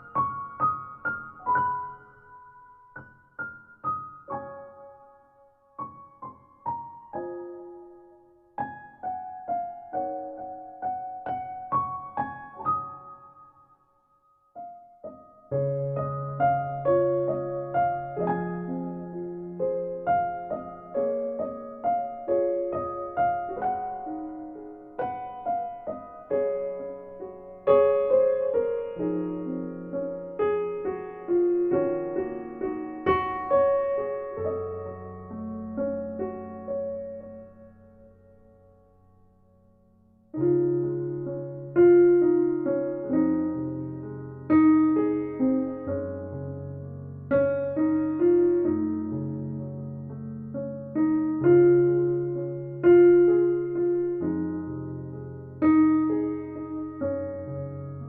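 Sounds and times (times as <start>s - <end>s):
gentle piano melody: 0.0s - 58.0s.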